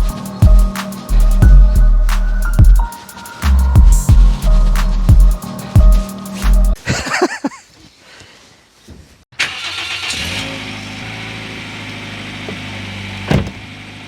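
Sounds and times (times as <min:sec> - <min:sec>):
car engine idling: 0:09.5 - 0:14.0
brief thump: 0:13.3 - 0:13.6.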